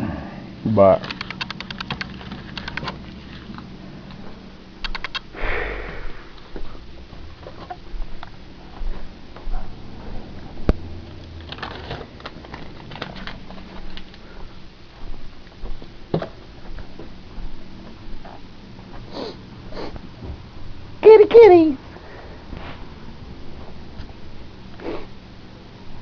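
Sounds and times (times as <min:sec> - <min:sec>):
brief rush of noise: 0:05.4 - 0:06.5.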